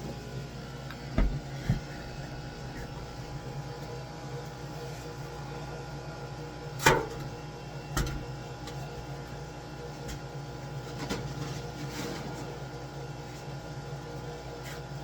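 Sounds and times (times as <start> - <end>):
machine hum: 0.0 - 4.4
sharp knocks: 1.2 - 3.4.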